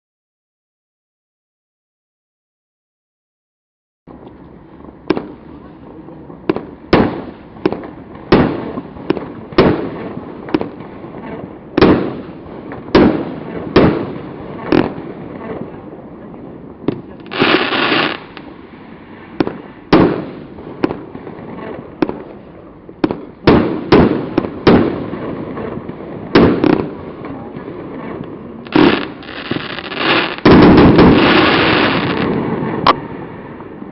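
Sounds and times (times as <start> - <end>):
firework crackle: 4.1 - 33.9
firework bangs: 4.8 - 33.9
rapid firework bursts: 17.1 - 22.3, 23.0 - 33.6.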